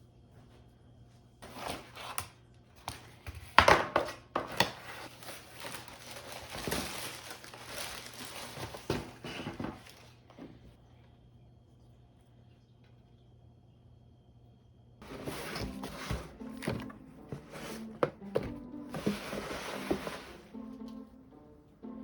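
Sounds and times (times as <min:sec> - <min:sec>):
packaging crinkling and rustling: 0:04.4 - 0:10.2.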